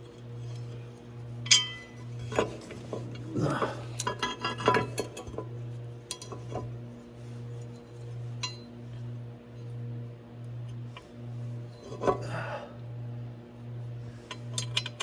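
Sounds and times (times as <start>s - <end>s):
steady low hum: 0.0s - 15.0s
metal tools clinking: 1.4s - 5.3s.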